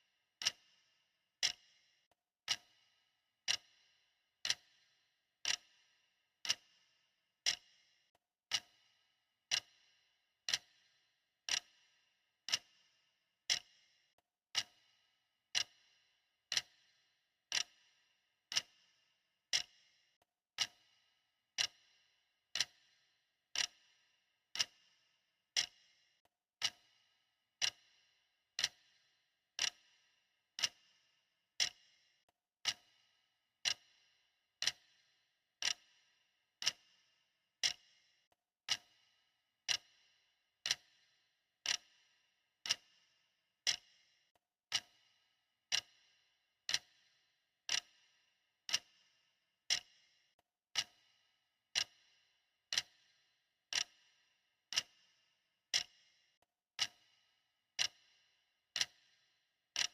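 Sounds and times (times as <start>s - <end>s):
clock ticking: 0.4s - 0.6s, 1.4s - 1.6s, 2.4s - 2.7s, 3.4s - 3.7s, 4.4s - 4.7s, 5.4s - 5.7s, 6.4s - 6.7s, 7.4s - 7.7s, 8.5s - 8.8s, 9.5s - 9.8s, 10.5s - 10.8s, 11.5s - 11.8s, 12.5s - 12.7s, 13.5s - 13.7s, 14.5s - 14.8s, 15.5s - 15.8s, 16.5s - 16.8s, 17.5s - 17.8s, 18.5s - 18.8s, 19.5s - 19.7s, 20.6s - 20.8s, 21.6s - 21.8s, 22.6s - 22.9s, 23.6s - 23.8s, 24.6s - 24.8s, 25.6s - 25.8s, 26.6s - 26.9s, 27.6s - 27.9s, 28.6s - 28.9s, 29.6s - 29.8s, 30.6s - 30.8s, 31.6s - 31.8s, 32.6s - 32.9s, 33.6s - 33.9s, 34.6s - 34.9s, 35.6s - 35.9s, 36.6s - 36.8s, 37.6s - 37.8s, 40.6s - 40.9s, 41.6s - 41.9s, 44.7s - 45.0s, 45.7s - 46.0s, 46.7s - 46.9s, 47.7s - 48.0s, 48.7s - 49.0s, 49.7s - 49.9s, 50.7s - 51.0s, 51.7s - 52.0s, 52.7s - 53.0s, 53.7s - 54.0s, 54.7s - 55.0s, 55.7s - 55.9s, 56.8s - 57.1s, 57.8s - 58.0s, 58.8s - 59.1s.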